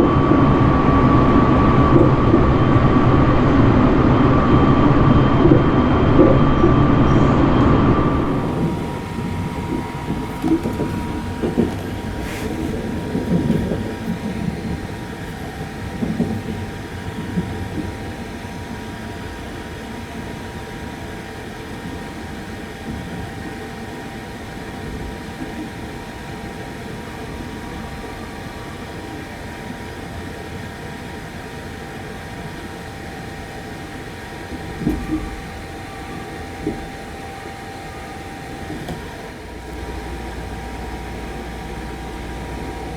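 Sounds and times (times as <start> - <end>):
train cabin rumble: 0.0 - 31.6, 34.2 - 42.9
faint steady hum: 0.0 - 42.9
train bumps: 5.4 - 18.2.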